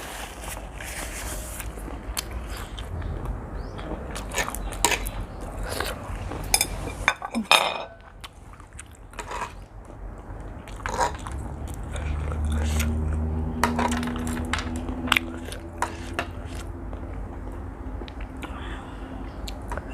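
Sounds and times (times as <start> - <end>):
noisy smear: 0.0 - 1.8
person chewing noodles: 1.6 - 7.0, 8.0 - 9.7, 10.4 - 18.8.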